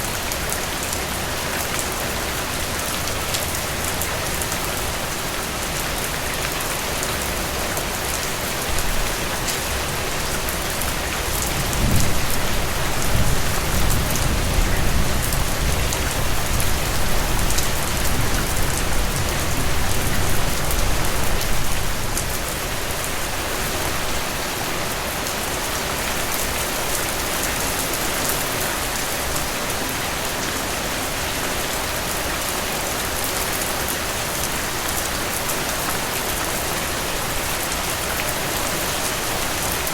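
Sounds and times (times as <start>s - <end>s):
rain falling on a roof: 0.0s - 39.9s
low rumble of thunder: 11.5s - 22.3s.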